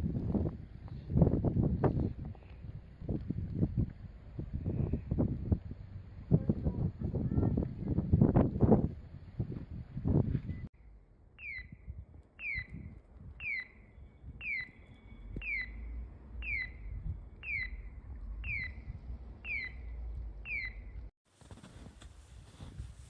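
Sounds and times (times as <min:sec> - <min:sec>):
high downward-sweeping chirp: 0:10.4 - 0:21.1
low rumble: 0:14.0 - 0:21.1.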